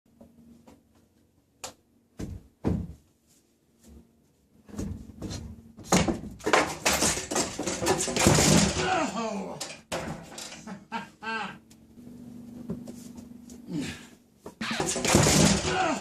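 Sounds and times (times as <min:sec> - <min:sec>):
knocks and thuds: 0:02.2 - 0:03.0, 0:04.7 - 0:08.9, 0:14.6 - 0:15.8
clattering: 0:06.5 - 0:08.8.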